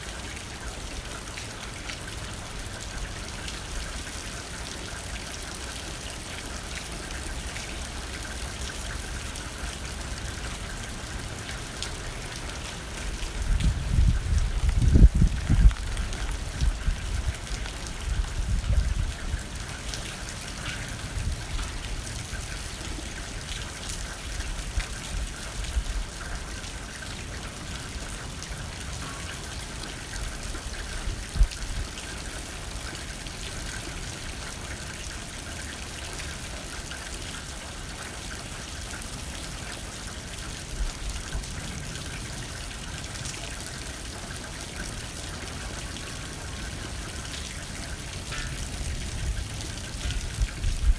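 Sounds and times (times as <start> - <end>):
rain pattering on a window: 0.0 - 50.9
wind gusts: 13.0 - 19.8, 48.6 - 50.9.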